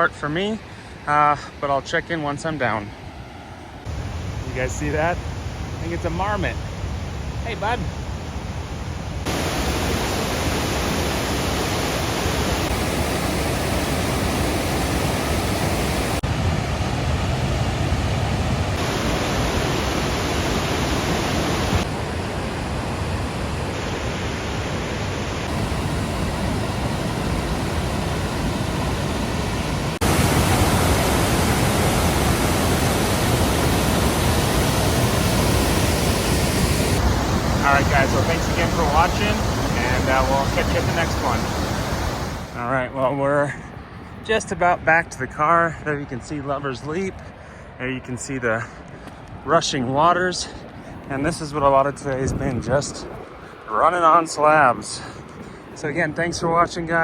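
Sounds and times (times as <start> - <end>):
waterfall roaring: 9.2 - 42.7.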